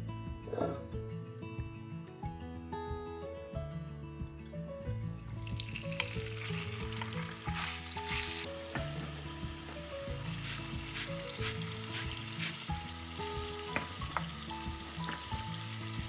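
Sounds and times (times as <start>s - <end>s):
background music: 0.0s - 16.0s
food sizzling in pan: 5.4s - 16.0s.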